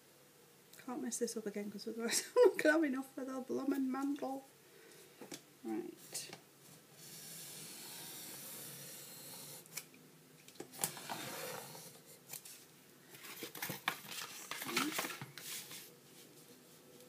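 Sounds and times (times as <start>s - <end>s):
blade cutting foam board: 7.0s - 9.7s.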